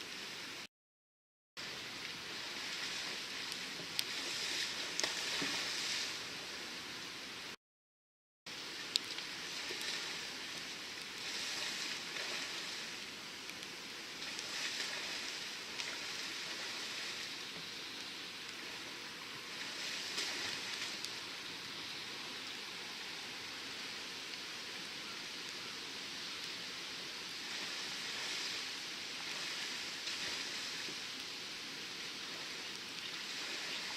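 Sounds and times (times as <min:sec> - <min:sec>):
water splashing around kayak: 0:01.6 - 0:06.6, 0:08.8 - 0:22.5, 0:27.2 - 0:33.9
water drips: 0:02.0 - 0:06.0, 0:08.8 - 0:21.3, 0:32.0 - 0:33.9.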